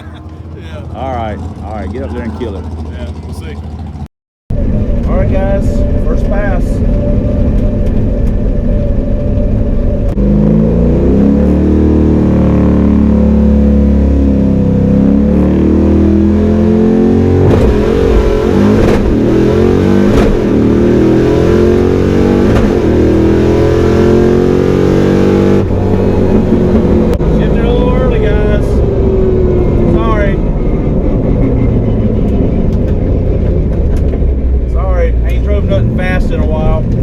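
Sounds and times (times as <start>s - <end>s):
car engine revving hard: 10.2s - 32.2s.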